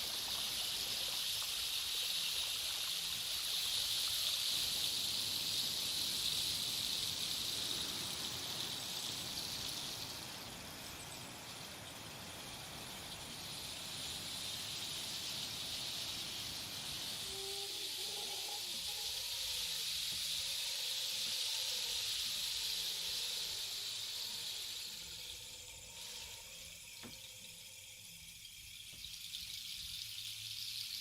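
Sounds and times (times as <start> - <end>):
rain stick pebbles pouring: 0.0 - 31.0
faint whistling tones: 7.1 - 30.9.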